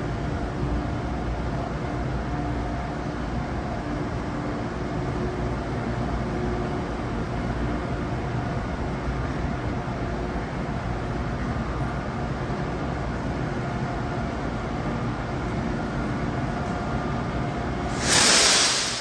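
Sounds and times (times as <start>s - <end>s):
passenger train humming: 0.0s - 19.0s
loud hiss: 17.9s - 19.0s.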